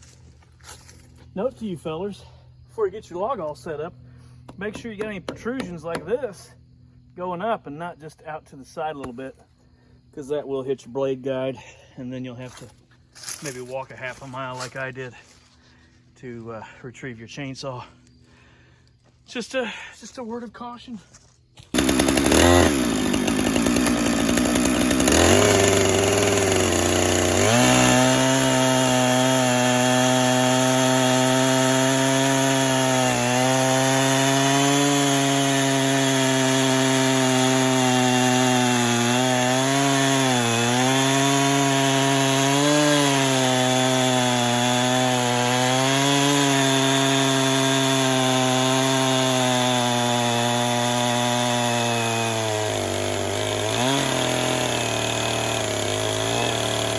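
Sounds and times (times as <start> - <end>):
saw blade cutting log: 4.4 - 6.6, 12.5 - 14.9, 21.7 - 56.9
sawmill gas engine running: 21.7 - 56.9.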